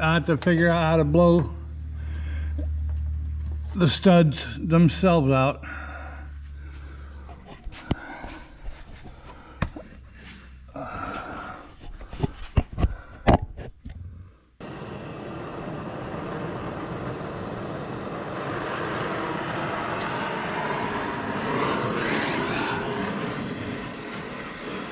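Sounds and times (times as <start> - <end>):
gas torch hissing: 14.6 - 24.9.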